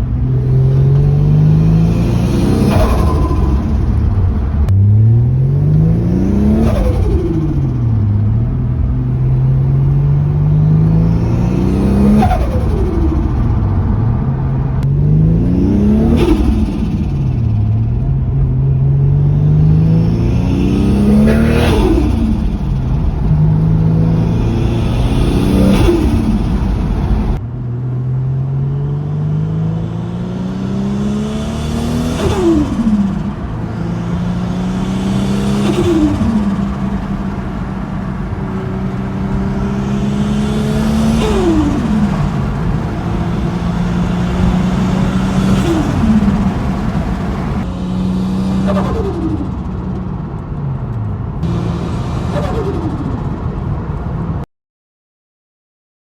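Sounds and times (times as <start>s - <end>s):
turbocharged car engine revving: 0.0s - 27.4s, 28.6s - 54.3s.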